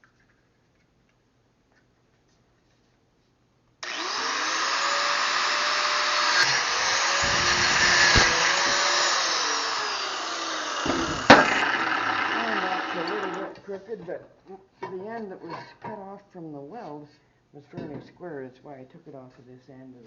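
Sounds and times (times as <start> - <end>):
angle grinder cutting metal pipe: 3.8 - 13.6
sharp knock: 10.8 - 11.6.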